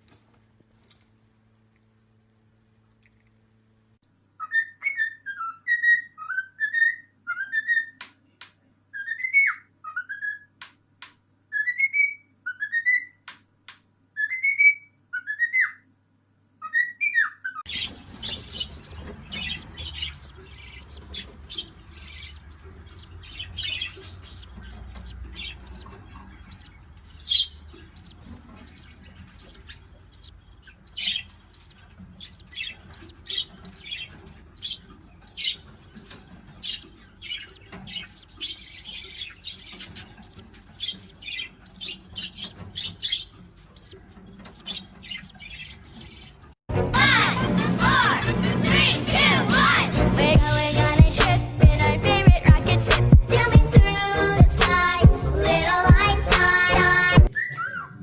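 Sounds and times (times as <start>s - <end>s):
parrot whistling call: 57.3s - 58.0s.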